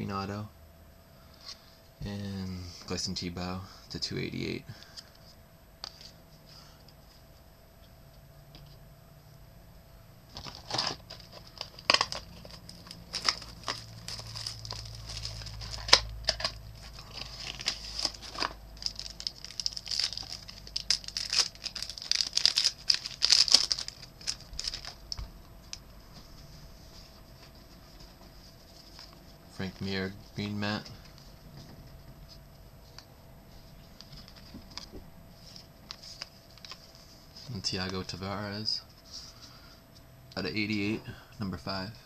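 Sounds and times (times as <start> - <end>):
wrapper tearing and crinkling: 10.4 - 25.2.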